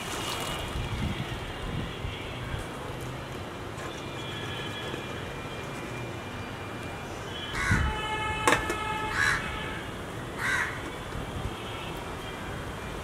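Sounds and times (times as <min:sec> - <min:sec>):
harsh crow-like bird calls: 0:07.6 - 0:08.0, 0:09.0 - 0:09.6, 0:10.4 - 0:10.8.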